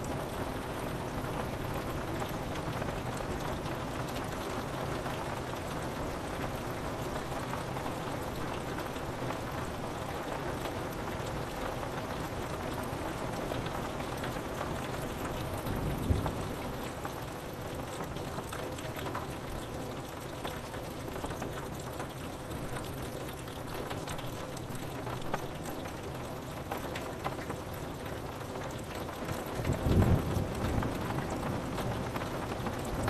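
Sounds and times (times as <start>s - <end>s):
rain pattering on a window: 0.0s - 33.0s
low rumble of thunder: 15.3s - 17.4s, 29.5s - 33.0s.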